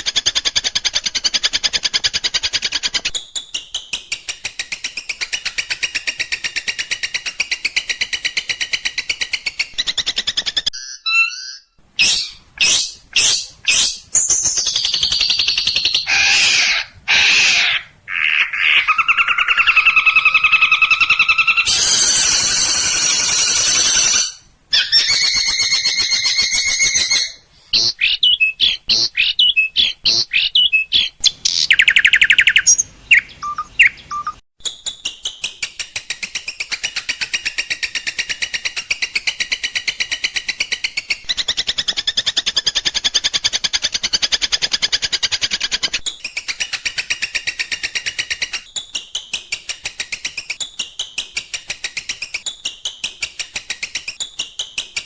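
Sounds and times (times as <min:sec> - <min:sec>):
harsh scratchy bird song: 0:08.1 - 0:34.4
bird whistled phrases: 0:10.8 - 0:27.4
bird clicking calls: 0:12.0 - 0:17.9, 0:24.8 - 0:27.3
bird rattling runs: 0:25.0 - 0:27.4.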